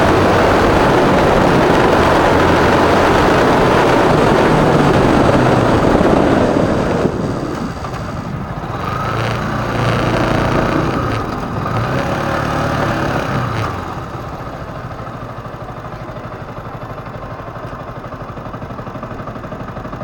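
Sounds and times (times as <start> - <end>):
wind noise on microphone: 0.0 - 14.4
motorcycle engine running: 0.0 - 20.0.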